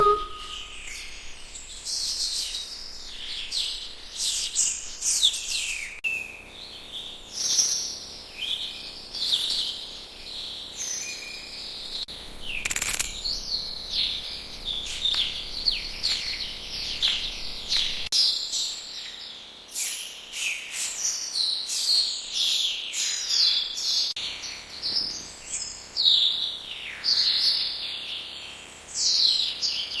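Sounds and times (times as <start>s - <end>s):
small birds chirping: 5.8s - 12.1s.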